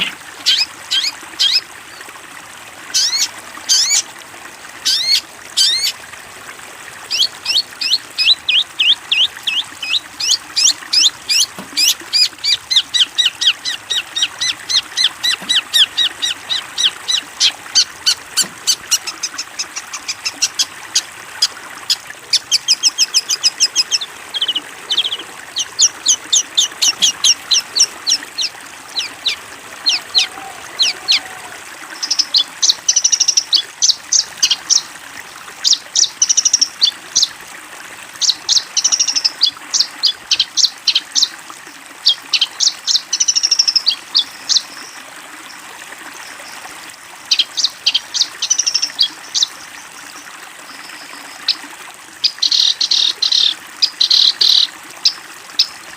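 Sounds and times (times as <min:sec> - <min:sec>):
songbird chirping: 0:07.1 - 0:34.9.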